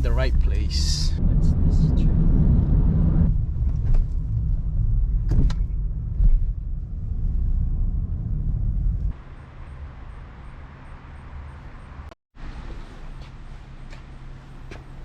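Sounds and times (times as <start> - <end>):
car road and engine noise: 0.0 - 15.0
thump: 5.2 - 6.5.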